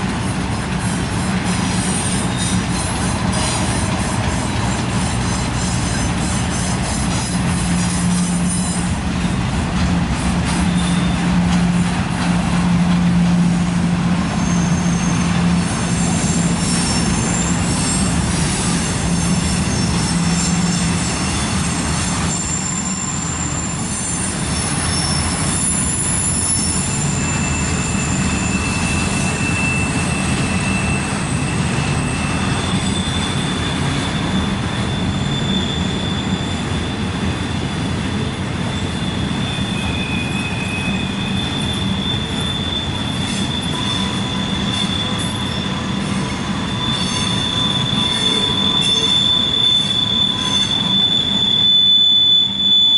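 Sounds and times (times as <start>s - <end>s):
freight train wheels rumbling: 0.0s - 52.9s
high-pitched flange squeal: 14.4s - 37.0s, 38.6s - 52.9s.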